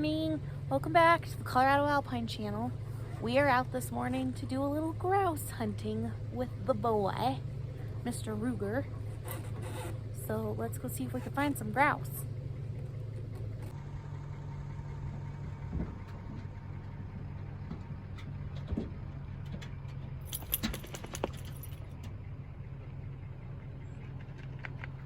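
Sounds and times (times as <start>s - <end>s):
vehicle engine humming: 0.0s - 25.0s
light rattles: 15.6s - 22.2s
metal clicks jangling: 20.2s - 22.0s.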